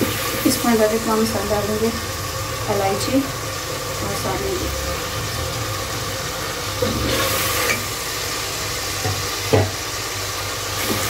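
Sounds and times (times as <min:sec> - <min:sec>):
masala sizzling in oil: 0:00.0 - 0:11.0.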